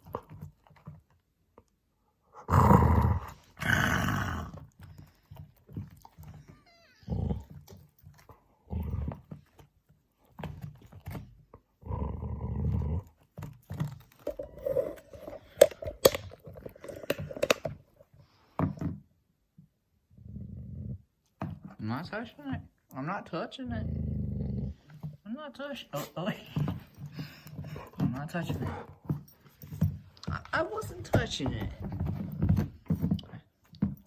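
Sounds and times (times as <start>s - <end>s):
dog growling: 2.3s - 9.5s, 11.7s - 17.6s, 20.1s - 21.1s, 23.7s - 25.1s, 26.0s - 29.0s.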